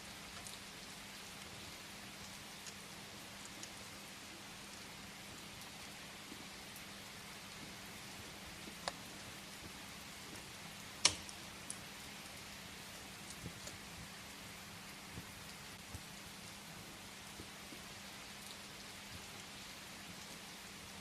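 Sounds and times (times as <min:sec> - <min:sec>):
steady rain hiss: 0:00.0 - 0:21.0
burning firewood popping: 0:08.6 - 0:11.8.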